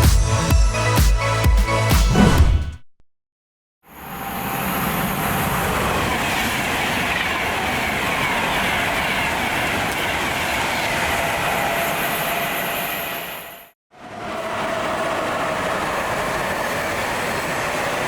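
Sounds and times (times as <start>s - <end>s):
train running along track: 3.8s - 18.0s.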